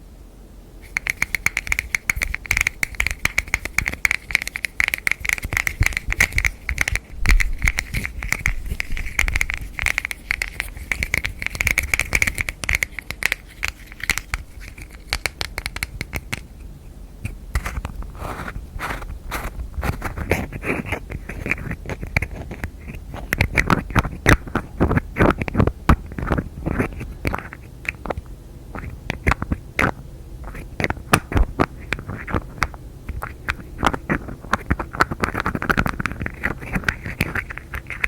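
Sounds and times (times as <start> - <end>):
hand tapping on hard object: 0.9 - 16.4.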